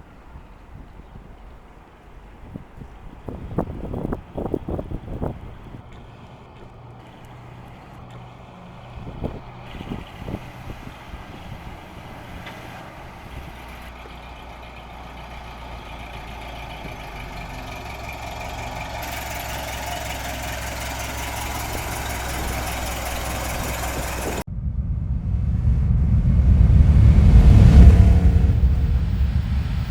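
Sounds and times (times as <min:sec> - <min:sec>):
car engine running: 0:00.0 - 0:29.9
low thumps: 0:21.3 - 0:29.9.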